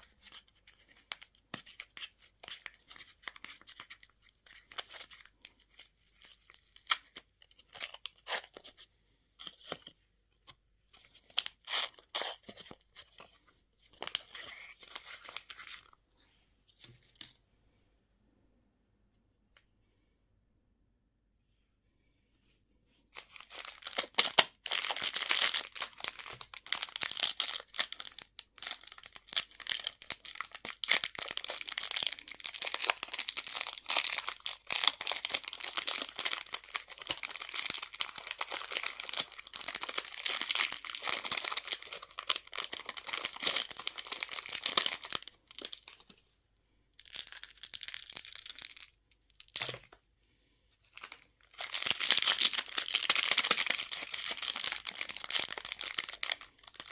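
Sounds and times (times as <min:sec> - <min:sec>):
candy wrapper crinkling: 0:00.0 - 0:08.8, 0:23.2 - 0:46.1, 0:47.0 - 0:50.0, 0:50.9 - 0:56.9.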